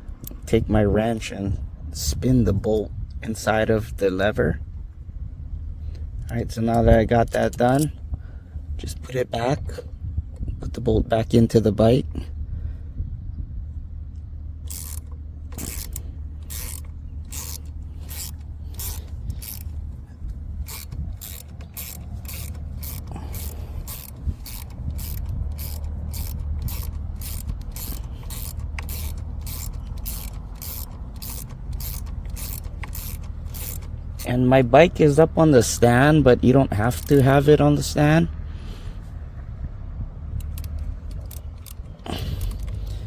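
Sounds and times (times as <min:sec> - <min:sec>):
socket ratchet clicking: 0:14.7 - 0:34.4, 0:36.9 - 0:37.4, 0:40.4 - 0:43.0.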